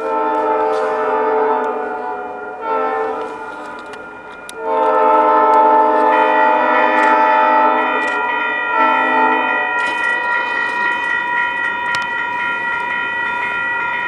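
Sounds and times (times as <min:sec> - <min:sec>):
locomotive air horn blasts: 0:00.0 - 0:11.2.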